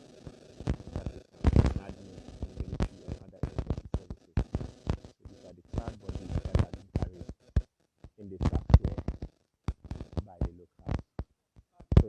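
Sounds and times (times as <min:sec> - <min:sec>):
people talking: 0:00.0 - 0:07.3, 0:08.2 - 0:09.1, 0:10.2 - 0:11.0.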